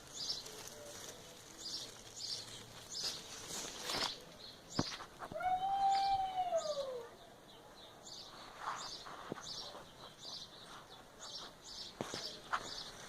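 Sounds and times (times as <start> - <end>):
birds and insects chirping: 0.0 - 5.3, 5.9 - 13.0.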